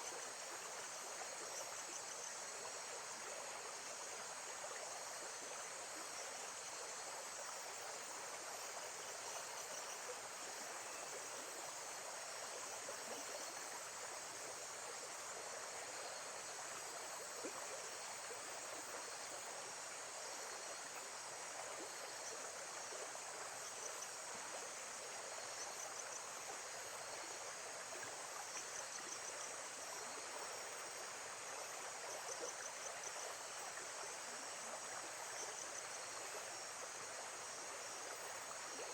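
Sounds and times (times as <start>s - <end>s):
faint insect chirps: 0.0s - 38.9s.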